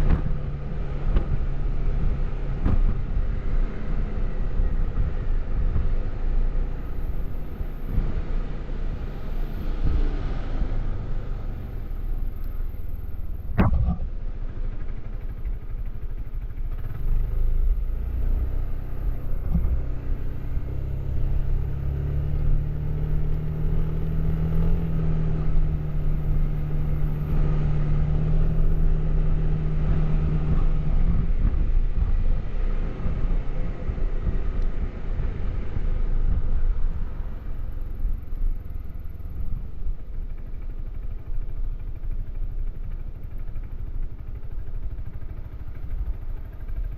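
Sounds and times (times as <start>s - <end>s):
scooter engine running: 10.6s - 46.9s.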